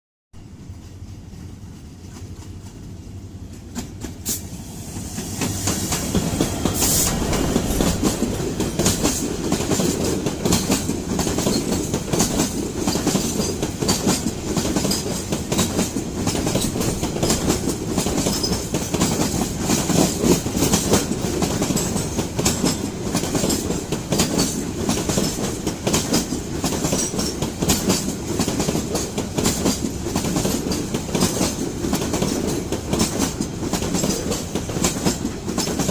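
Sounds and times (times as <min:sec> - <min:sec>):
freight train wheels clattering: 0:00.8 - 0:35.9.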